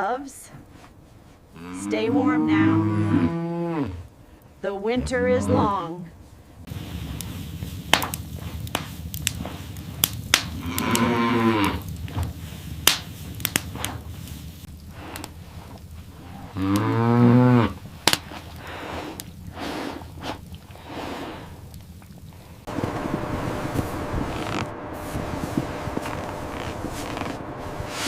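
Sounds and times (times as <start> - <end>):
cow mooing: 1.6 - 4.0, 5.0 - 5.8, 10.6 - 11.9, 16.4 - 17.8.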